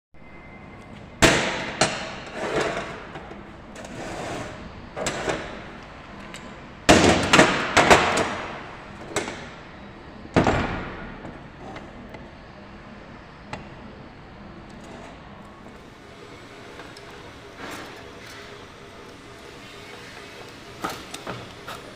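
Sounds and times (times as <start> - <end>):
sharp knocks and clanks: 1.2 - 4.0, 6.9 - 9.6, 10.3 - 12.3.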